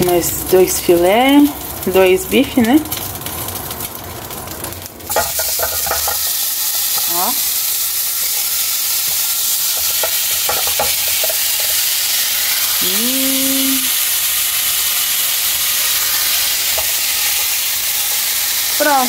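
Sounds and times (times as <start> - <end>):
steaks sizzling in a pan: 0.0 - 19.0.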